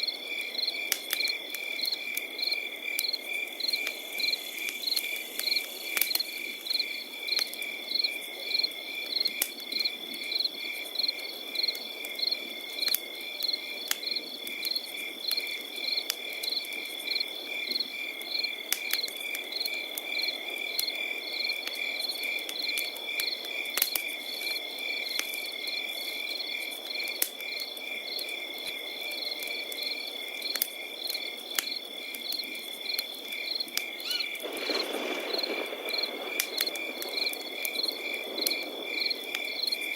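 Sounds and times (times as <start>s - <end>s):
campfire crackles: 0.0s - 39.9s
crickets chirping: 0.0s - 39.9s
high insect trill: 0.6s - 8.6s, 31.7s - 39.9s.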